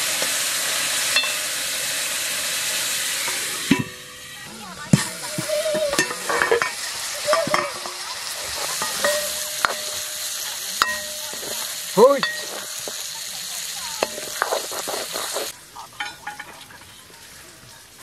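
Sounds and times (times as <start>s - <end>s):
meat sizzling in a wok: 0.0s - 18.0s
metal ladle scraping wok: 1.0s - 16.7s
ladle squealing on pan: 3.0s - 13.0s.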